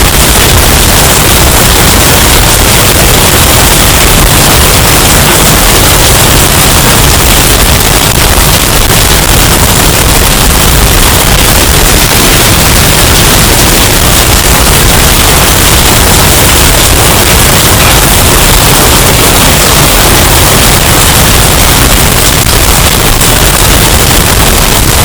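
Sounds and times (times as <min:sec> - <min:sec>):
distorted hurricane storm noise: 0:00.0 - 0:25.0.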